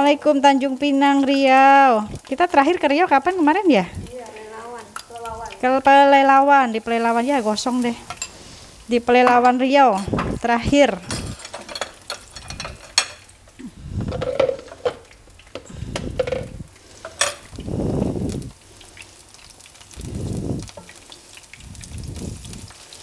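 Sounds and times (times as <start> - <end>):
mushrooms sizzling in oil: 0.0 - 23.0
tongs clinking against pan: 8.0 - 8.4, 9.1 - 10.3, 11.0 - 13.4, 16.2 - 17.5.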